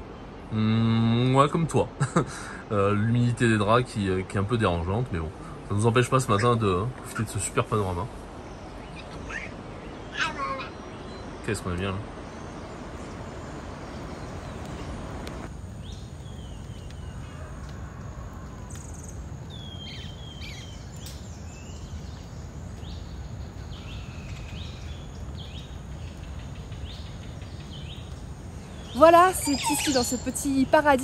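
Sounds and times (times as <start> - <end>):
birds whistling: 12.2 - 31.0.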